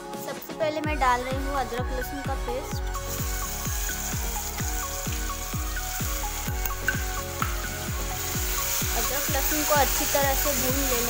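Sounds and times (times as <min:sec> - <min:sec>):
background music with steady beat: 0:00.0 - 0:11.0
paste sizzling in hot oil: 0:02.6 - 0:11.0.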